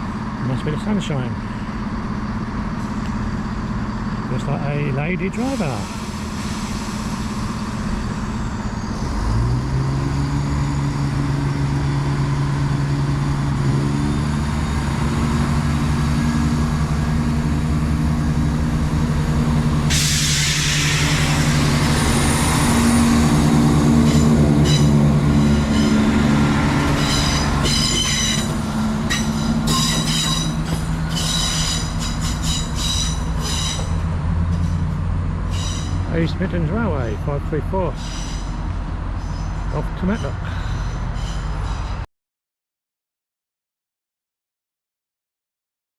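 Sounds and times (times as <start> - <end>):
diesel train engine: 0.0 - 42.1
train wheels squealing: 5.6 - 11.6, 24.0 - 26.2, 26.8 - 34.0, 35.5 - 36.2, 38.0 - 42.0
sudden hiss: 19.9 - 22.2.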